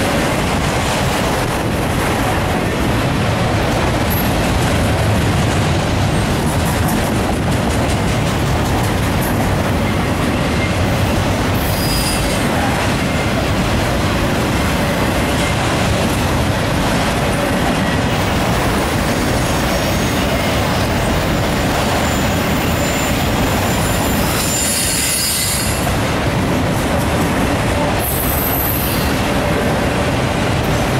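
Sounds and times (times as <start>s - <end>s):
freight cars rumbling on rails: 0.0s - 30.9s
high-pitched wheel squeals: 11.6s - 12.3s, 22.0s - 25.9s.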